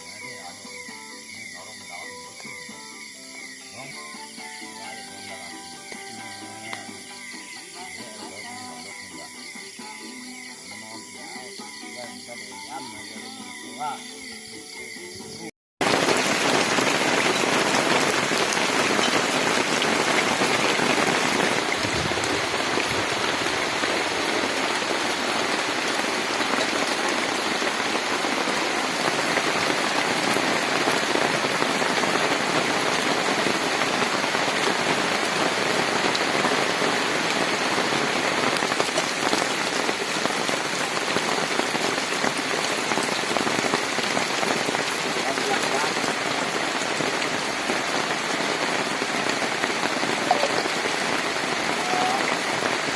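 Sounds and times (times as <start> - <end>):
heavy rain pouring: 15.8 - 52.9.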